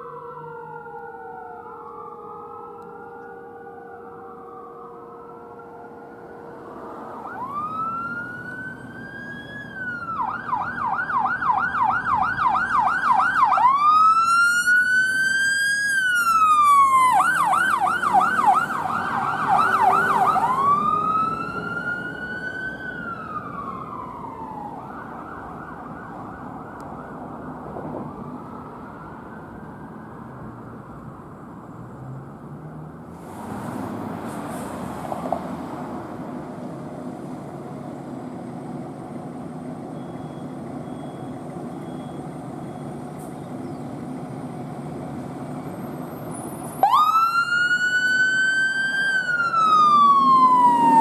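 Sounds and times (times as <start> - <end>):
emergency siren wailing and yelping: 0.0 - 31.5, 45.6 - 51.0
low traffic rumble: 0.0 - 51.0.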